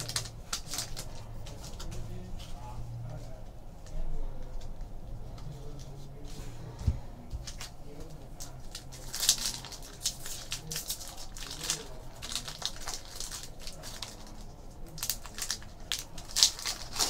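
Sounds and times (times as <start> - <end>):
foil wrappers crinkling: 0.0 - 2.7, 7.4 - 17.0
cards rustling: 0.0 - 6.8, 7.4 - 17.0.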